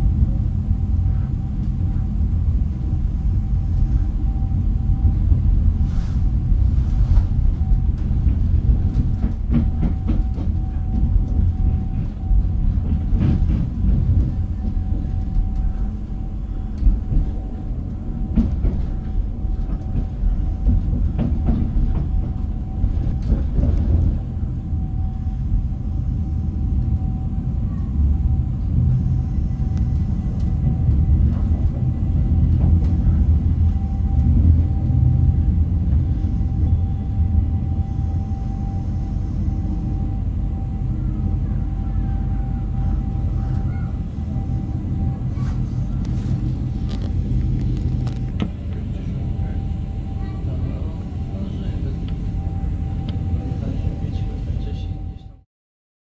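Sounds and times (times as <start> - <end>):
train low rumble: 0.0 - 55.5
steady high tone: 36.4 - 55.4.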